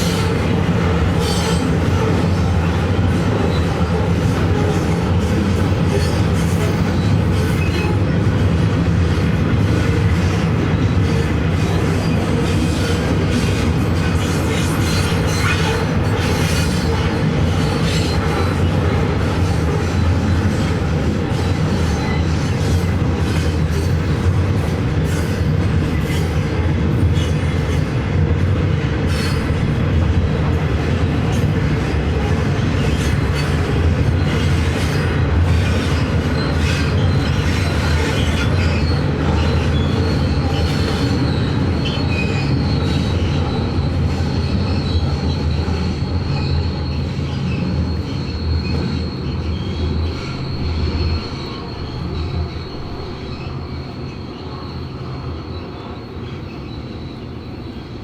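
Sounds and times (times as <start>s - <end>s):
train wagons rumbling past: 0.0s - 58.0s
high wheel squeal: 10.2s - 24.2s, 31.4s - 58.0s.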